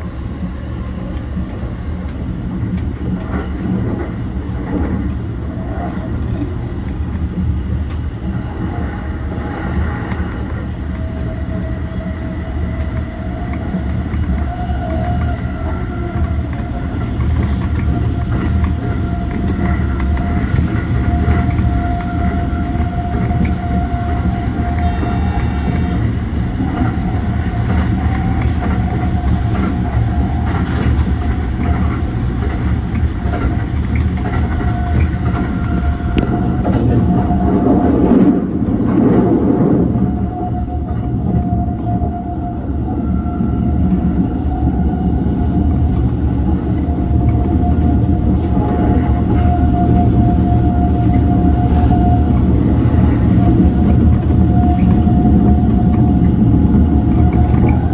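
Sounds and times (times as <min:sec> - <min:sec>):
train wheels rumbling on rail: 0:00.0 - 0:57.9
train motor whine: 0:12.5 - 0:38.6, 0:49.5 - 0:57.9.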